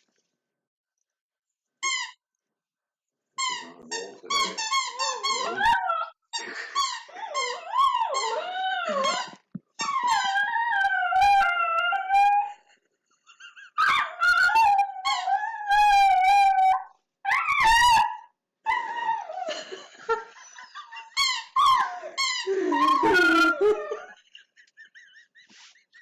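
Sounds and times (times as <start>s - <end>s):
squeaky toy squeaking: 1.8s - 2.2s, 3.4s - 10.5s, 20.9s - 23.8s
dog howling: 5.4s - 6.1s, 7.2s - 12.6s, 13.8s - 19.4s, 21.6s - 24.2s.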